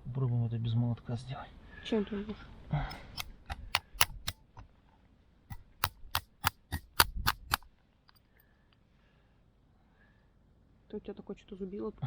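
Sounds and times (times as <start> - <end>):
wrench tapping metal chisel: 2.9 - 4.6, 5.5 - 8.2.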